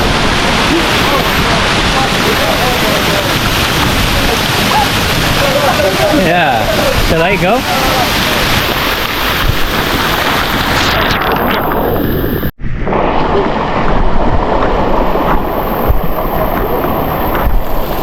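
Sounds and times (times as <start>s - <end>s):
waterfall rushing: 0.0s - 12.5s, 13.1s - 18.0s.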